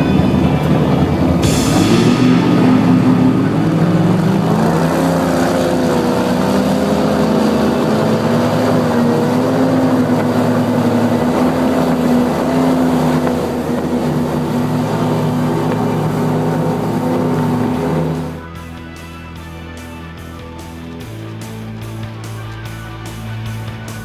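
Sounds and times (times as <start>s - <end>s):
powerboat engine drone: 0.0s - 18.6s.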